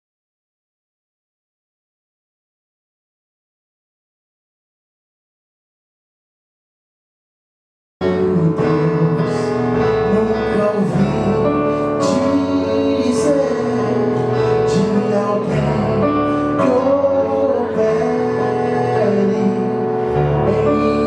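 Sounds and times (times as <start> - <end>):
gospel song instrumental: 8.0 - 21.0.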